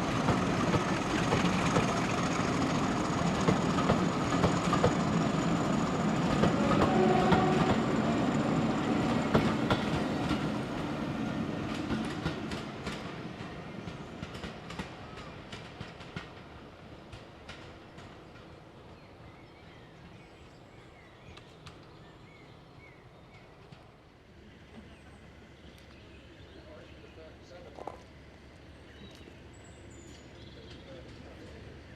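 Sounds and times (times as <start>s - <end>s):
train wheels clicking over rail joints: 0.0s - 10.7s, 11.3s - 18.7s
train passing: 0.0s - 31.9s.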